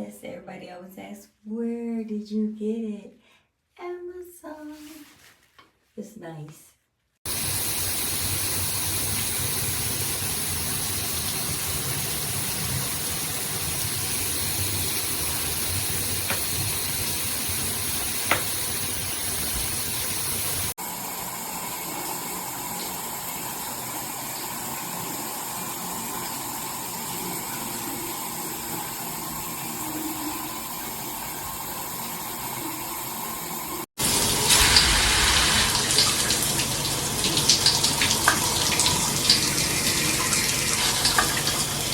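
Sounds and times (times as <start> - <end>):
shower head spraying water: 7.3 - 20.8, 22.4 - 41.9.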